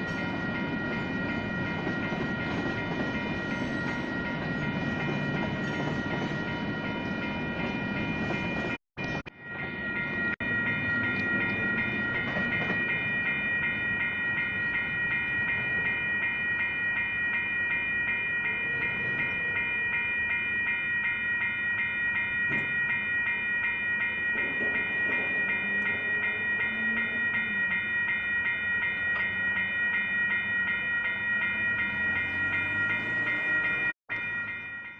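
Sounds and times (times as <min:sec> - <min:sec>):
railroad crossing bells ringing: 0:00.0 - 0:34.9
rumble of passing train: 0:00.0 - 0:34.9.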